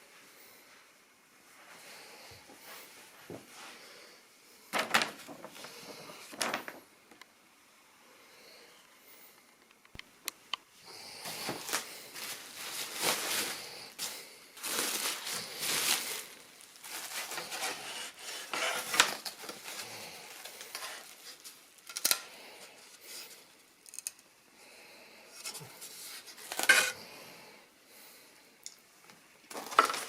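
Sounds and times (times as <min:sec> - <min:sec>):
plastic packaging rustling: 0:04.8 - 0:06.9, 0:10.9 - 0:23.5, 0:25.4 - 0:27.0, 0:29.5 - 0:30.0.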